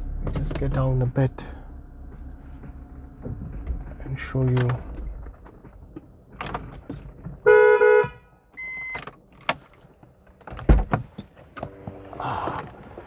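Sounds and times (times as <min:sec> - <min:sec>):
car horn double honk: 0:07.4 - 0:08.2.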